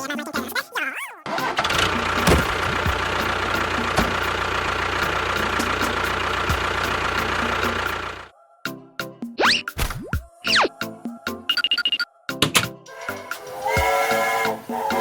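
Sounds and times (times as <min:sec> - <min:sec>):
engine idling: 0:01.3 - 0:08.3.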